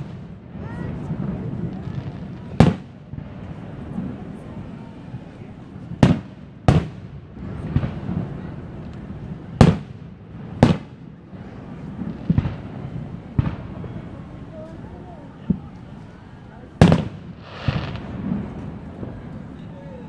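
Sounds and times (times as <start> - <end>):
fireworks exploding bangs: 0.0 - 14.3, 16.8 - 19.6
steady low rumble: 17.2 - 19.6.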